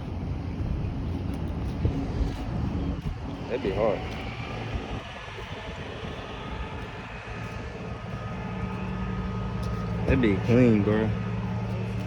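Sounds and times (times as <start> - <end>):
mechanical drone with low hum: 0.0 - 12.0.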